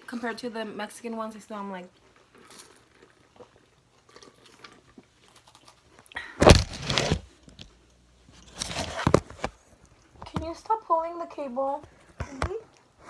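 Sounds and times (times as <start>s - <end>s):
chewing crisp wafer cookies: 0.1s - 8.6s
loud clattering rustle: 6.4s - 7.3s.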